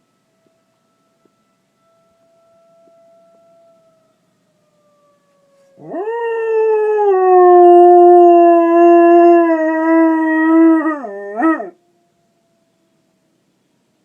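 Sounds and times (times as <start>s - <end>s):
dog howling: 5.7s - 11.8s.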